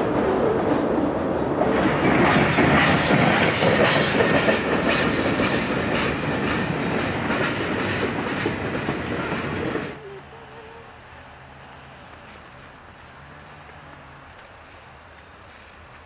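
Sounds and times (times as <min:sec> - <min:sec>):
freight train wheels clattering: 0:01.6 - 0:10.0.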